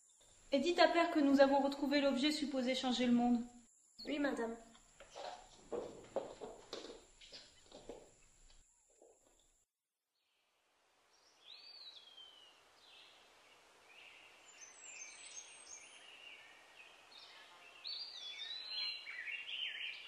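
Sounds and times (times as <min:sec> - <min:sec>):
birds singing: 0:11.2 - 0:20.0.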